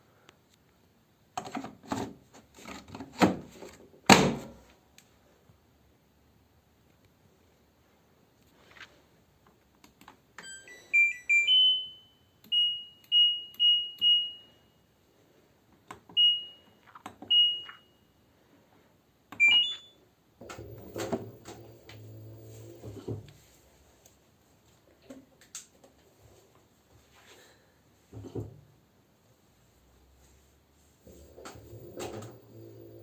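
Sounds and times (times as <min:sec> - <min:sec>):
rising start chime: 0:10.4 - 0:12.2
washing machine panel beeps: 0:10.4 - 0:14.6, 0:16.1 - 0:18.0, 0:19.4 - 0:20.0
washing machine humming: 0:20.4 - 0:23.3, 0:31.0 - 0:33.0.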